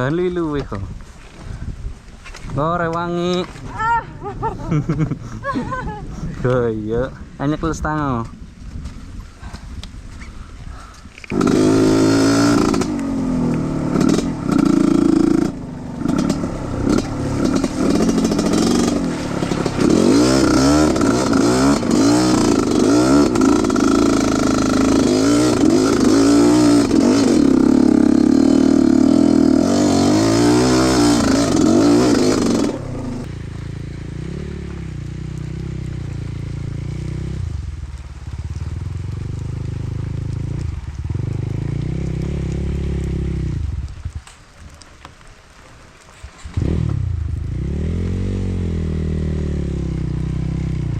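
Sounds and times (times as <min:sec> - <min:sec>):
motorcycle engine revving: 0:11.3 - 0:44.0, 0:46.4 - 0:50.9.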